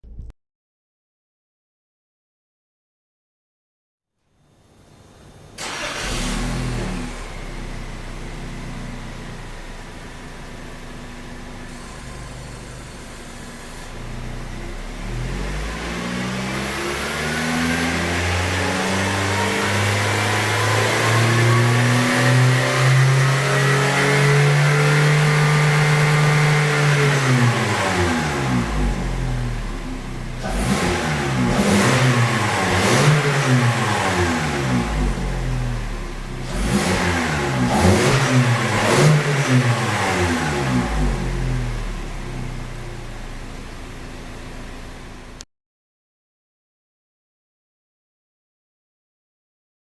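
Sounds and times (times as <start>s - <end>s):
car engine revving through exhaust: 6.0s - 45.4s.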